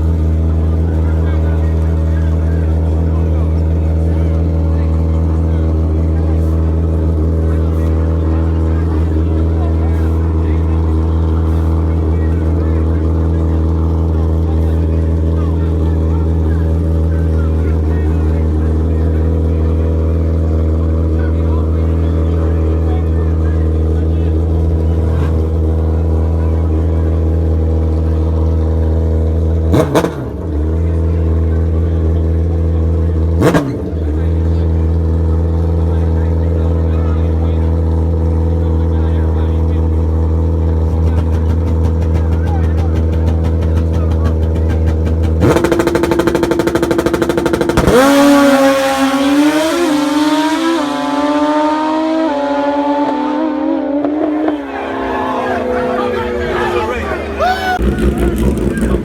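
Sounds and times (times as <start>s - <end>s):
racing motorcycle engines revving: 0.0s - 59.0s
racing motorcycles passing: 40.6s - 59.0s.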